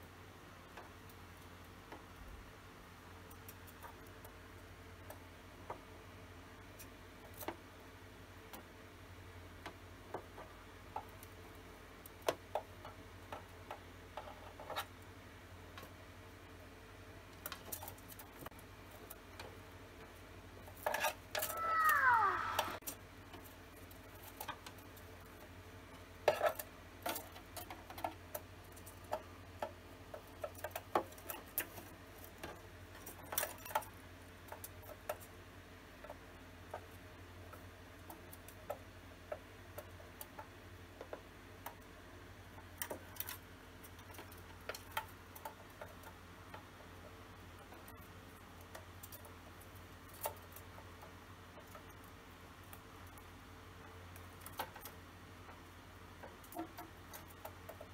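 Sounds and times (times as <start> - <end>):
rustle: 17.2 - 57.9.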